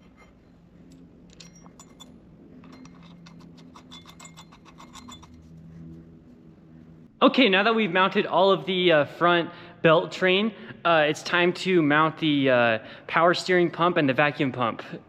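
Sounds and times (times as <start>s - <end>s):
metallic clinking of hand tools: 0.0s - 5.5s
steady low hum: 0.0s - 15.0s.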